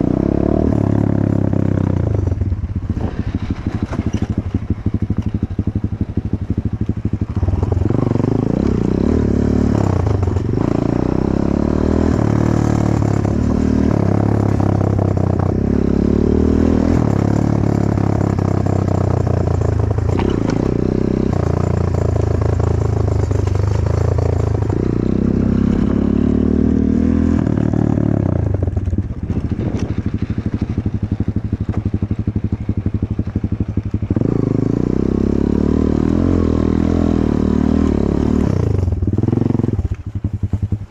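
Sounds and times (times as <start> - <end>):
motorcycle engine revving: 0.0 - 40.9
motorcycle clattering: 18.2 - 25.0.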